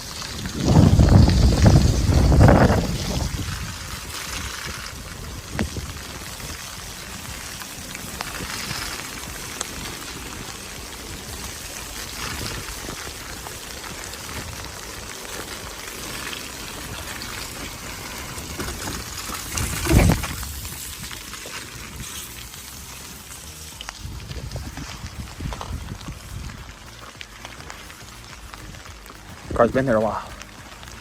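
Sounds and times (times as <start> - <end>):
rain hissing: 0.0 - 31.0
wind rumble on microphone: 0.0 - 31.0.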